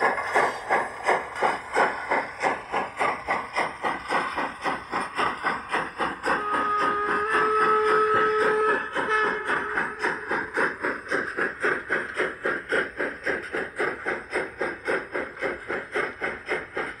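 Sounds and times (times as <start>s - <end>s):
steam locomotive chuffing: 0.0s - 17.0s
steam whistle: 6.3s - 10.2s.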